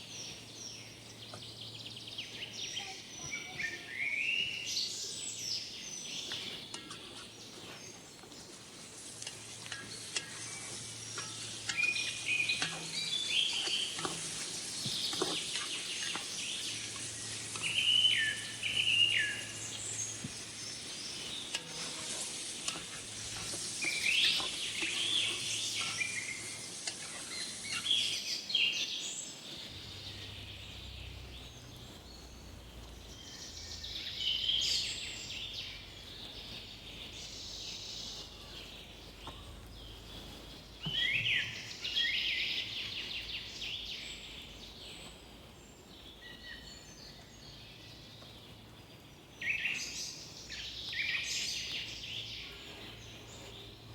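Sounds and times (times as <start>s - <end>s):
birds chirping: 0.0s - 53.9s
food sizzling in a pot: 8.5s - 28.8s.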